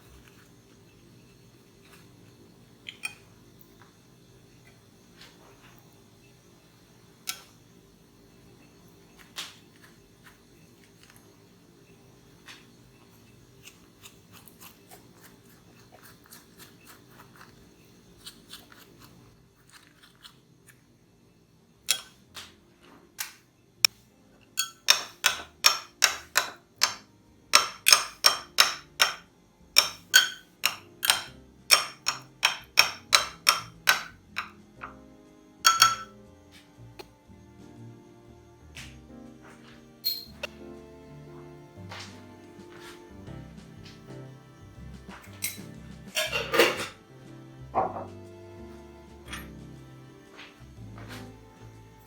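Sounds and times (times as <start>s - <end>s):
ringing utensil strikes: 24.6s - 27.0s, 27.6s - 29.2s, 29.8s - 34.6s, 35.6s - 36.2s.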